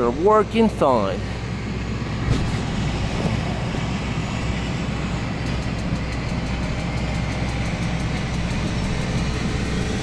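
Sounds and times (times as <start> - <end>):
auxiliary power unit rushing: 0.0 - 10.0
wind rumble on microphone: 1.4 - 10.0
fast high-pitched ticking: 5.4 - 10.0.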